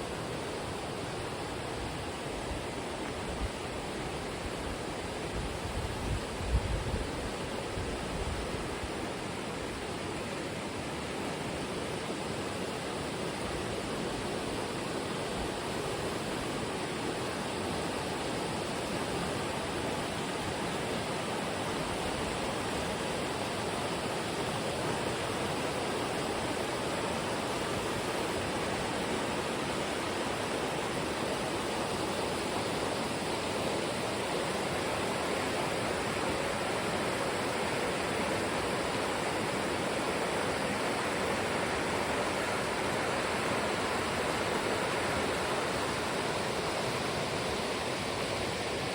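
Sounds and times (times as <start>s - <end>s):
running water rushing: 0.0s - 48.9s.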